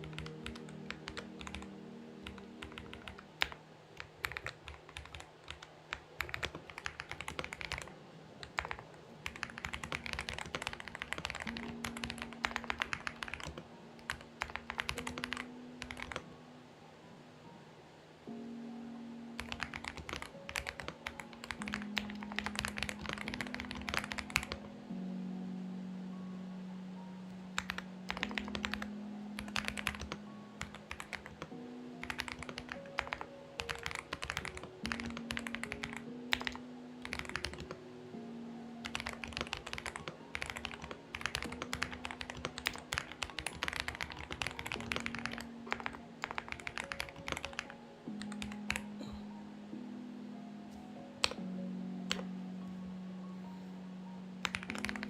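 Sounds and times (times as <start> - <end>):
mechanical keyboard typing: 0.0 - 16.2, 19.4 - 24.7, 27.6 - 37.8, 38.8 - 49.0, 54.4 - 55.0
soft background music: 0.0 - 55.0.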